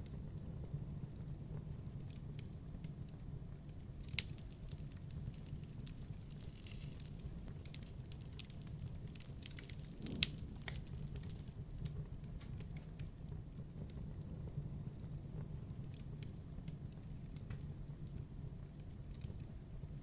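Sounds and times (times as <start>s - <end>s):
campfire crackling: 4.1s - 11.5s
fire snapping: 4.1s - 11.6s.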